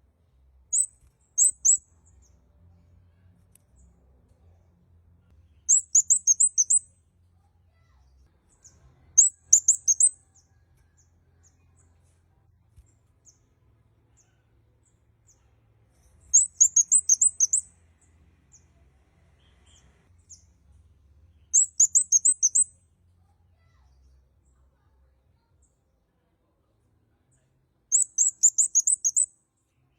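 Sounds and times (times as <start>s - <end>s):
bird calling high chip notes: 16.4s - 17.6s.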